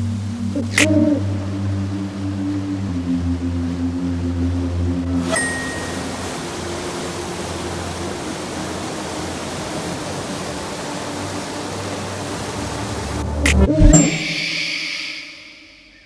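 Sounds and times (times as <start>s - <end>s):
boat rushing noise: 0.0s - 14.5s.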